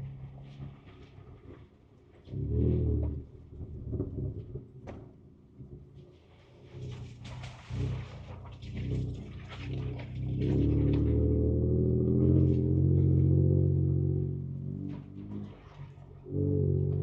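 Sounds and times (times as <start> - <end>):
engine pulling under throttle: 6.5 - 17.0.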